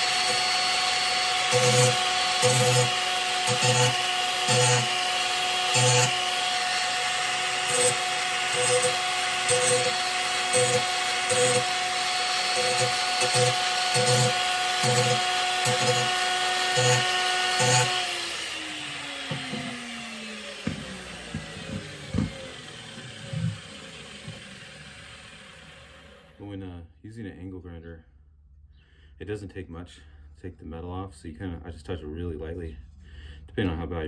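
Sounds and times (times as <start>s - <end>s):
grinder disc on steel blade: 0.0s - 24.6s
angle grinder whine: 0.0s - 26.4s
grinder spinning down: 0.0s - 26.4s
knocks: 19.3s - 19.8s.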